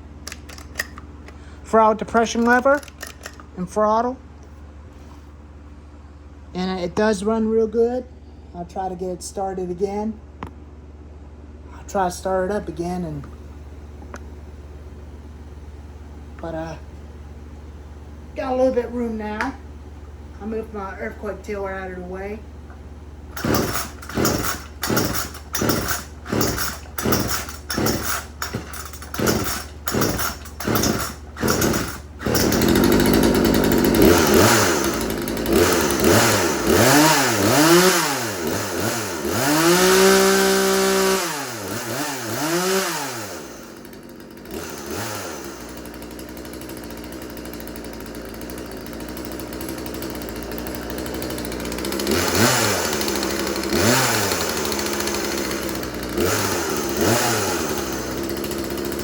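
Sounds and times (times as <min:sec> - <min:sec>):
chainsaw pull-starting: 0:00.0 - 0:03.6, 0:23.3 - 0:59.0
chainsaw revving and idling: 0:00.0 - 0:03.6, 0:18.0 - 0:59.0.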